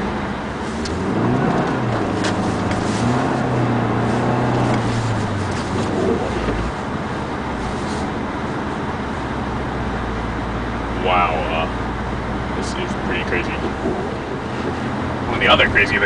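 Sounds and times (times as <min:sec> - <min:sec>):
car engine revving: 0:00.0 - 0:08.1, 0:10.2 - 0:16.0
wind and road noise: 0:00.0 - 0:16.0.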